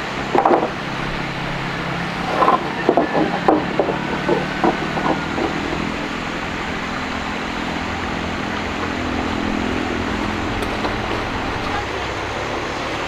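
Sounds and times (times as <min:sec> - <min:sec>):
small motor humming: 0:00.0 - 0:13.0
knocks: 0:00.3 - 0:01.4, 0:02.2 - 0:07.5.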